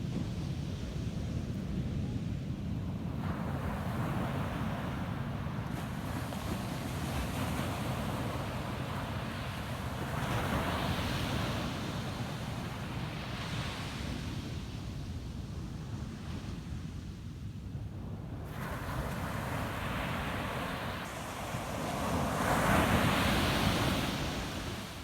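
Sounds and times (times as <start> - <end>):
ocean surf breaking: 19.2 - 25.0.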